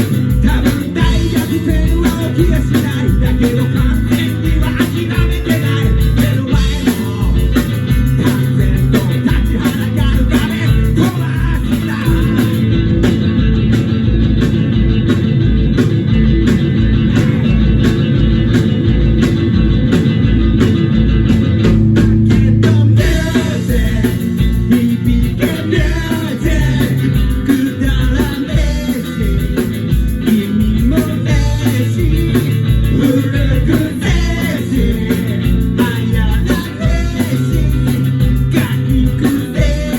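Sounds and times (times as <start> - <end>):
person singing: 0.0 - 12.6, 21.9 - 39.9
bass guitar: 0.0 - 39.9
drums on a steady beat: 0.0 - 39.9
electric guitar: 0.0 - 39.9.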